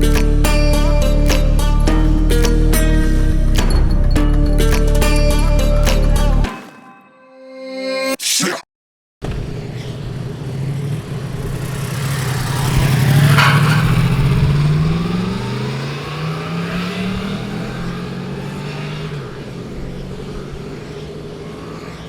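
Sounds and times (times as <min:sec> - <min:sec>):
motorcycle accelerating past: 0:09.3 - 0:22.0.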